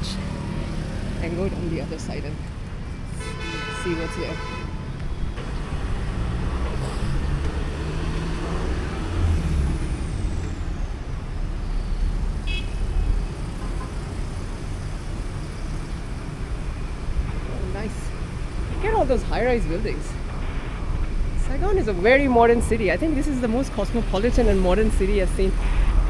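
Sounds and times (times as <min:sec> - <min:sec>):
city road traffic: 0:00.0 - 0:26.0
car horn beep: 0:03.1 - 0:05.4, 0:12.4 - 0:13.1.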